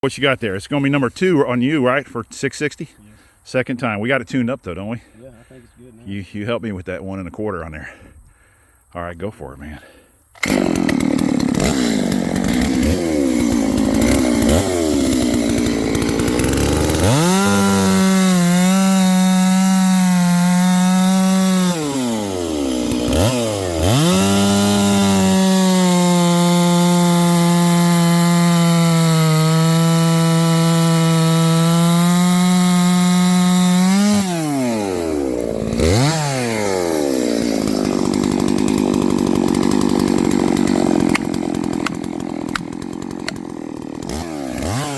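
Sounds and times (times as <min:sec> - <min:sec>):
chainsaw idling and revving: 0:09.8 - 0:44.9
chainsaw cutting wood: 0:10.3 - 0:44.9.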